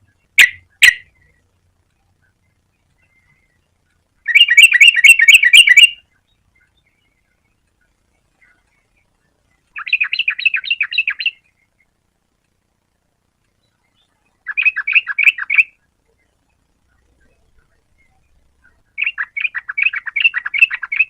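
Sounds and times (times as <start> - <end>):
bird singing chattering notes: 0.0 - 1.4, 4.2 - 7.7, 9.7 - 12.0, 13.6 - 16.4, 17.0 - 21.0.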